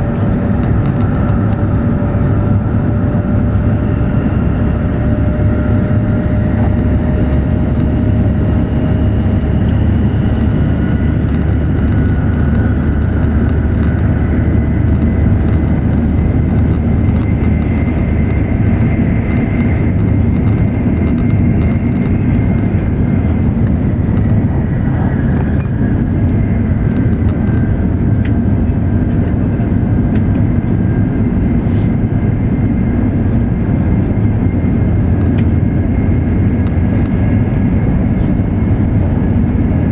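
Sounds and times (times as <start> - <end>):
faint whining tones: 0.0 - 28.3
train low rumble: 0.0 - 39.9.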